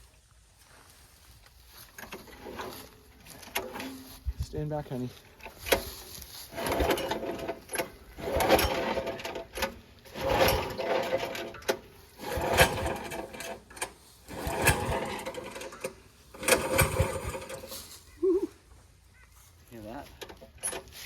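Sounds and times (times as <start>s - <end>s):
engine cranking without starting: 1.8s - 4.2s, 4.9s - 18.2s, 20.0s - 21.0s.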